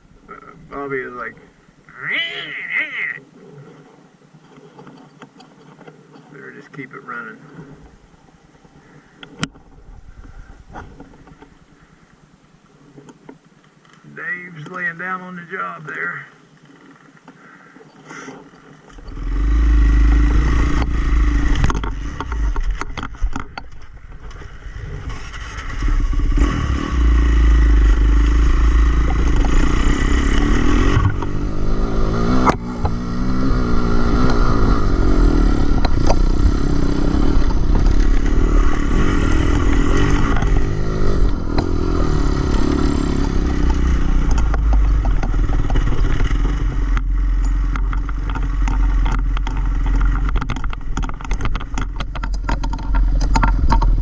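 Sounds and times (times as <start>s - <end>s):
wind rumble on microphone: 9.5s - 11.4s, 19.0s - 54.0s
dirt bike engine revving: 19.0s - 22.8s, 24.7s - 54.0s.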